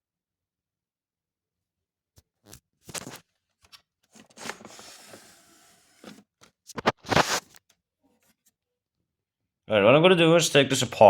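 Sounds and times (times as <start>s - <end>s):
objects scraping and knocking: 4.1s - 7.6s.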